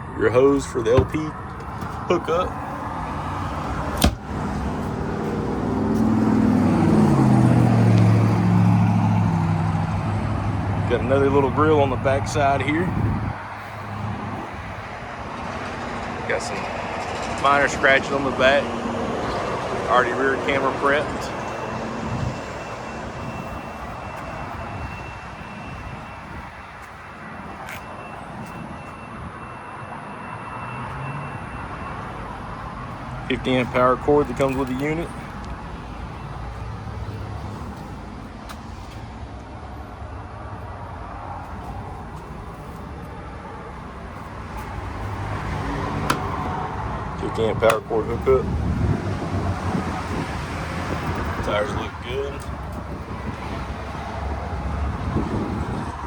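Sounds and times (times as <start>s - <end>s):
outdoor rumble and hiss: 0.0s - 56.0s
vehicle engine running: 1.0s - 26.4s.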